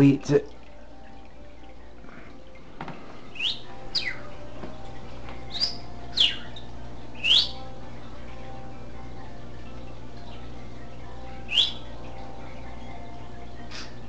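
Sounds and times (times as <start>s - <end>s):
steady low hum: 0.0s - 14.0s
budgie chirping: 3.3s - 4.3s, 5.5s - 7.6s.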